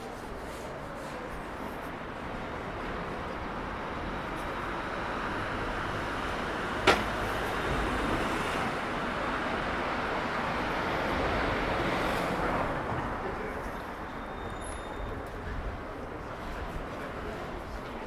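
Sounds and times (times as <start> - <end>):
passing vehicles: 2.3 - 14.0
sharp knock: 6.9 - 7.2.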